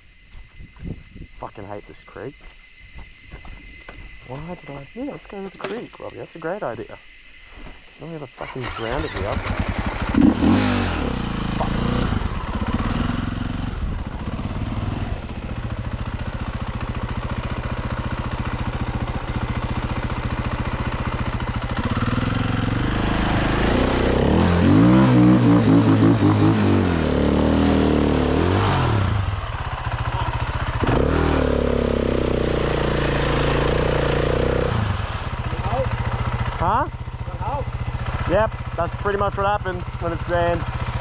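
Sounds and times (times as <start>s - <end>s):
dirt bike engine revving: 8.4s - 41.0s.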